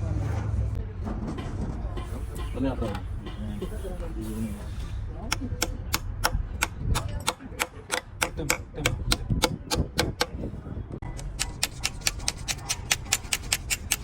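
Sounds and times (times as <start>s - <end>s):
rapid sharp taps: 11.2s - 14.0s.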